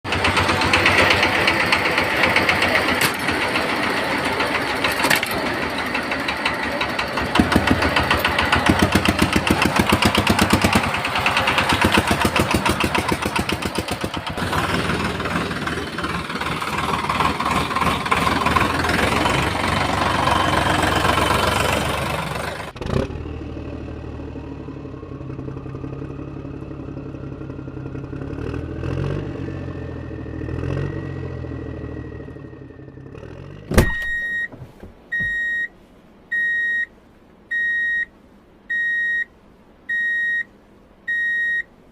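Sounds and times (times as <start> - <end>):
engine chugging: 0.0 - 29.2.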